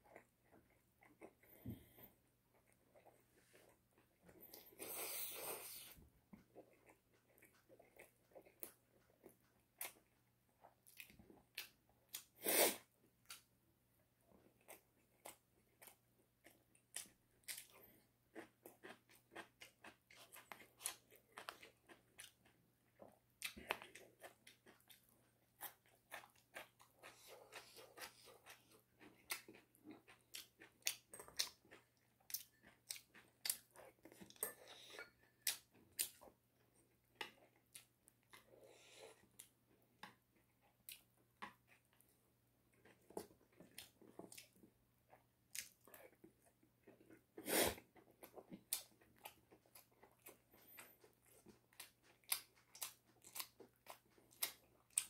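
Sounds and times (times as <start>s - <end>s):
chicken being chewed with crunches: 14.3s - 55.0s.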